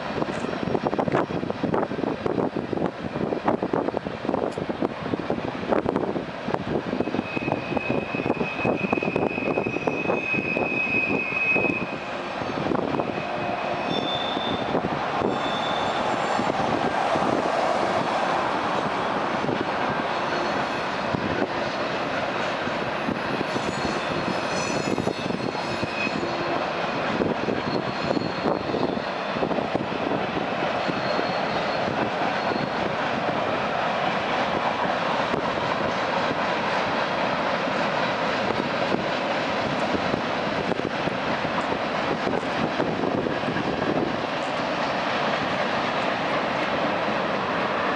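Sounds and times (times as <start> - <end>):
train wheels rumbling on rails: 0.0 - 47.9
high-pitched wheel squeals: 7.0 - 16.6, 20.1 - 21.8, 23.0 - 26.6, 27.5 - 29.3, 30.8 - 32.9.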